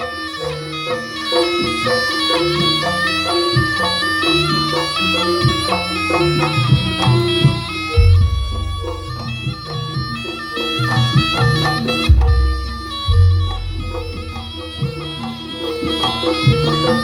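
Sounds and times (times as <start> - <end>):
reedy wind melody: 0.0 - 17.0
drum strokes: 4.8 - 17.0.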